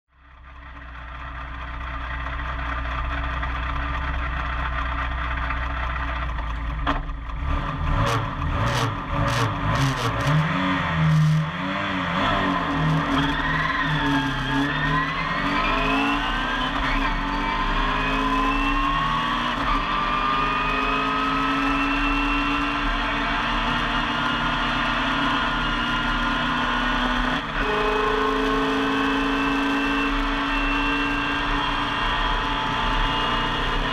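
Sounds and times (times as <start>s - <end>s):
car engine revving: 6.8s - 33.9s.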